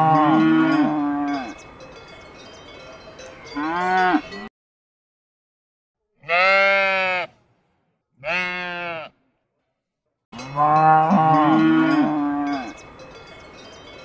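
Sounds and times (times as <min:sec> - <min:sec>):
background noise: 0:06.0 - 0:14.0
livestock calling: 0:06.2 - 0:07.3, 0:08.2 - 0:09.2.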